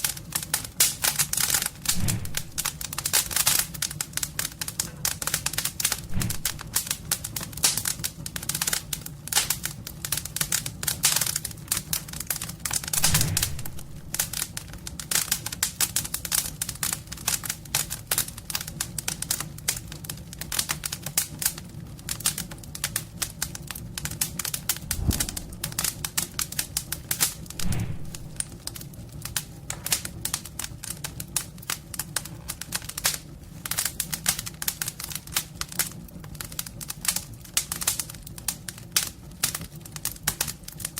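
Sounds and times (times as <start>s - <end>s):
wood fire crackling: 0.0s - 40.9s
heavy thumps: 1.9s - 2.8s, 6.0s - 6.7s, 13.0s - 14.4s, 24.8s - 26.1s, 27.6s - 28.6s
low rumble: 1.9s - 2.8s, 6.0s - 6.7s, 13.0s - 14.4s, 24.7s - 26.6s, 27.5s - 28.8s.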